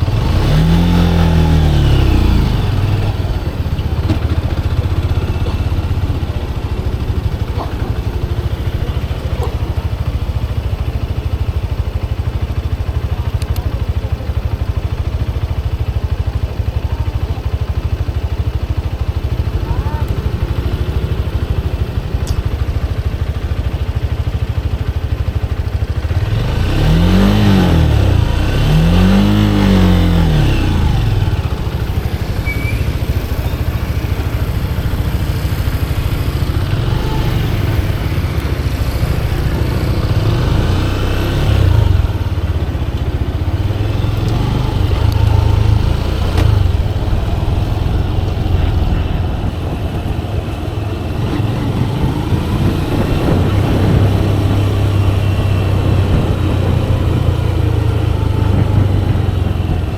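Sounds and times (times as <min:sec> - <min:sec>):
motorcycle engine revving: 0:00.0 - 0:59.9
wind rumble: 0:27.9 - 0:59.9.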